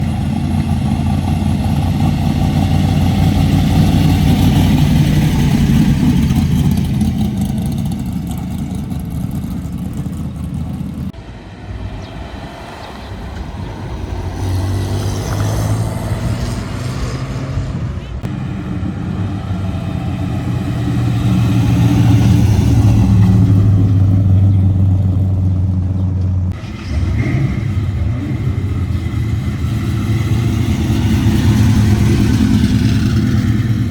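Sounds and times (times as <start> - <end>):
car engines rumbling and revving: 0.0 - 33.9.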